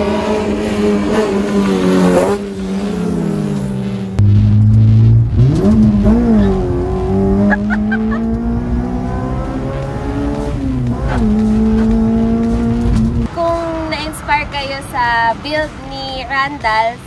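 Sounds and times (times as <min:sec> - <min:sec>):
car engine revving hard: 0:00.0 - 0:13.3.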